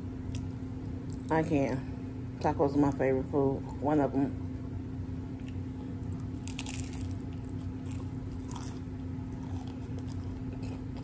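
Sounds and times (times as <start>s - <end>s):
steady low hum: 0.0s - 11.0s
crunchy taco shell chewing: 5.4s - 11.0s.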